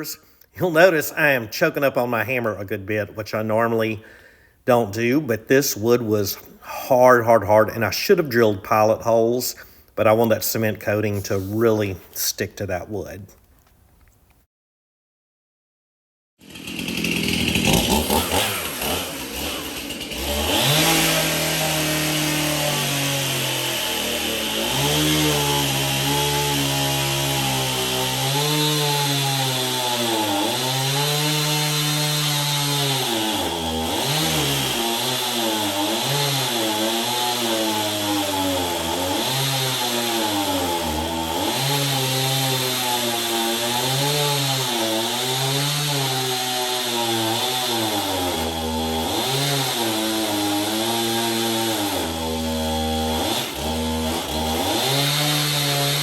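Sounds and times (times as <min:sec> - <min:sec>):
power tool cutting hardwood: 0:16.4 - 0:56.0.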